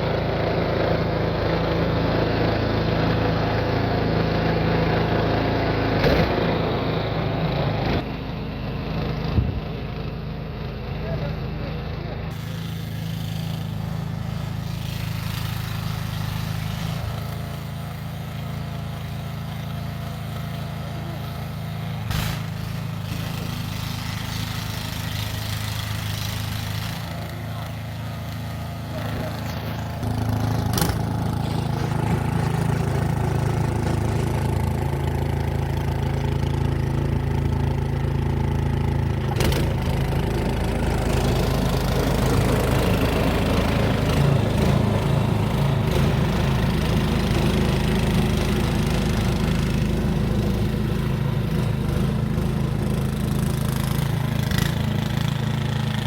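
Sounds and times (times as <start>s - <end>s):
snow blower engine running: 0.0s - 56.0s.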